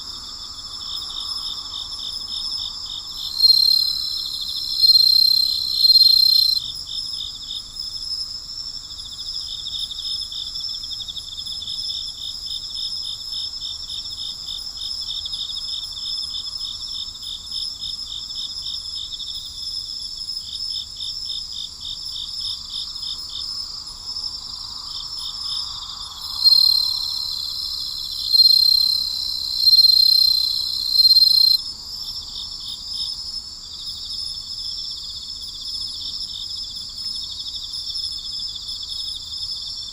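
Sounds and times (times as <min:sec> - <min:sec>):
crickets trilling: 0:00.0 - 0:39.9
fast pulsing cricket chirp: 0:00.0 - 0:39.9.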